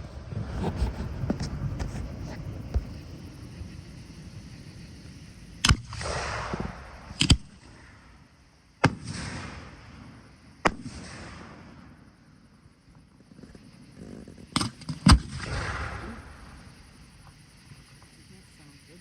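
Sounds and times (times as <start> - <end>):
fireworks bangs: 0.0 - 8.2, 8.8 - 12.1, 14.6 - 16.9
fireworks hissing crackle: 0.0 - 19.0.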